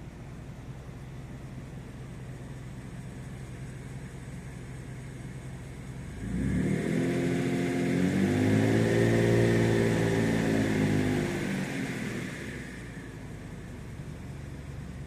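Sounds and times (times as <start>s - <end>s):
car engine revving from idle: 4.5s - 14.8s.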